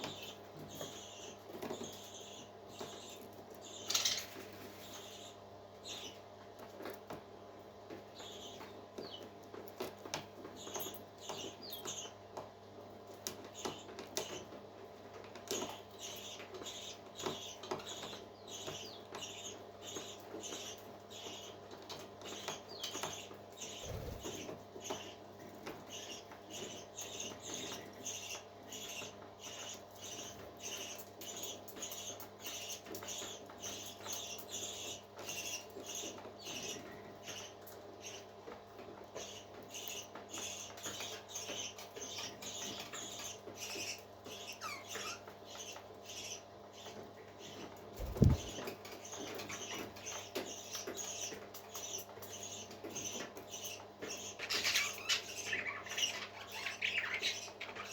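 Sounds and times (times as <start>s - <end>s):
parrot chick peeping: 0.0s - 7.0s, 15.1s - 57.9s.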